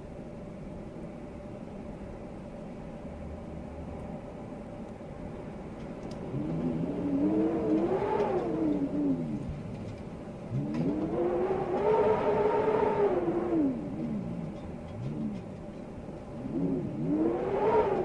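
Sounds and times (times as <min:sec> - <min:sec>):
wind howling: 0:06.1 - 0:18.0.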